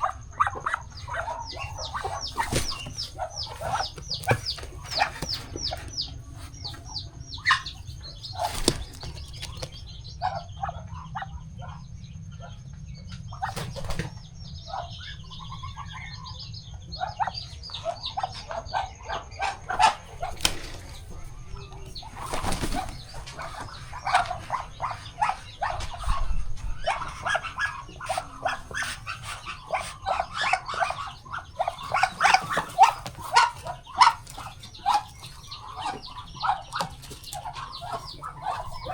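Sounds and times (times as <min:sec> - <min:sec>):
poultry peeping and clucking: 0:00.0 - 0:38.9
wing flaps: 0:01.5 - 0:06.8, 0:07.4 - 0:09.9, 0:19.7 - 0:27.1.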